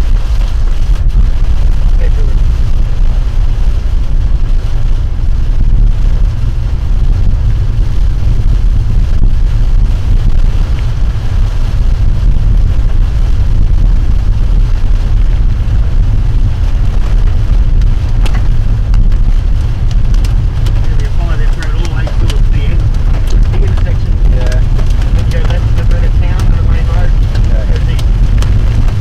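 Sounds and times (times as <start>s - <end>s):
vehicle low rumble: 0.0s - 29.0s
wind buffeting microphone: 0.0s - 29.0s.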